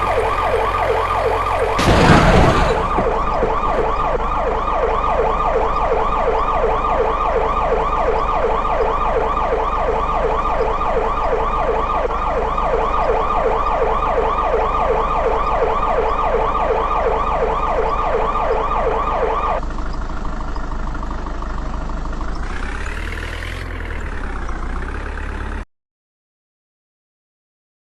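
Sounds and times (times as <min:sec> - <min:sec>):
police siren yelping: 0:00.0 - 0:19.6
siren slow rise and fall: 0:00.0 - 0:19.7.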